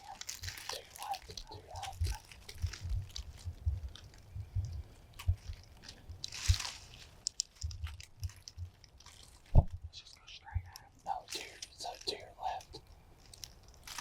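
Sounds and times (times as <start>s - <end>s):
soft crunching and rustling: 0.0s - 14.0s
low thumps and clicks: 1.3s - 8.8s, 9.5s - 10.8s.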